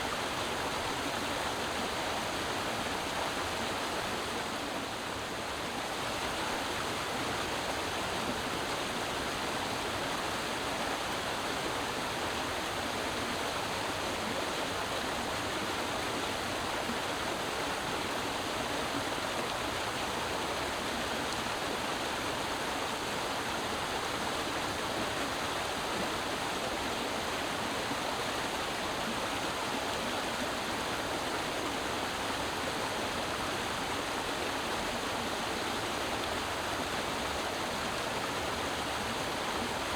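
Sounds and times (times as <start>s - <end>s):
creek water rushing: 0.0s - 39.9s.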